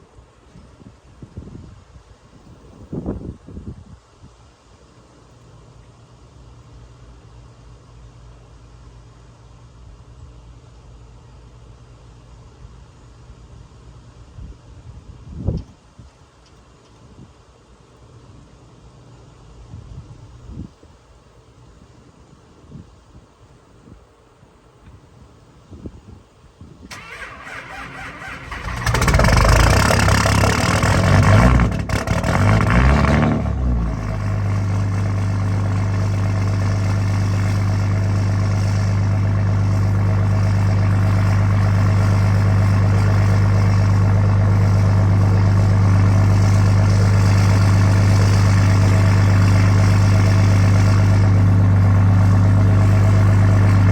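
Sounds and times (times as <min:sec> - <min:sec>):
diesel engine cranking and idling: 0:26.9 - 0:53.9.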